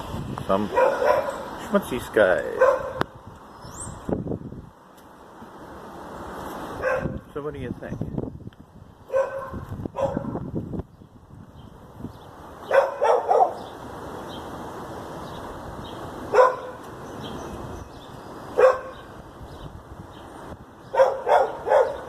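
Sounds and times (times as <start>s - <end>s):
dog barking: 0.7s - 1.5s, 2.5s - 3.1s, 6.8s - 7.2s, 9.1s - 10.4s, 12.7s - 13.6s, 16.3s - 16.8s, 18.6s - 19.1s, 20.9s - 22.0s.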